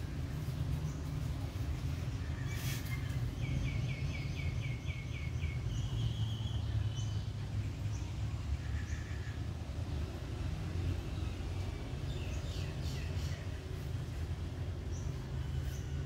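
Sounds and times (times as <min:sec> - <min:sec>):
low outdoor rumble: 0:00.0 - 0:16.0
bird chirping: 0:01.9 - 0:09.5.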